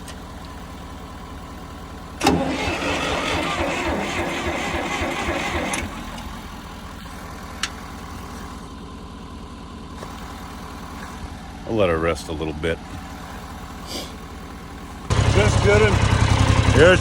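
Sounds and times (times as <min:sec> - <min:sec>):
engine idling: 0:00.0 - 0:17.0
tractor starter cranking engine: 0:02.2 - 0:06.6.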